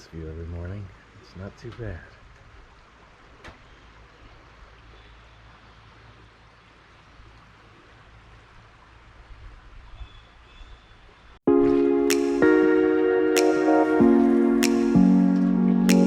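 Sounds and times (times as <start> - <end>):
river water flowing: 0.0 - 9.9
loud music: 11.5 - 16.0.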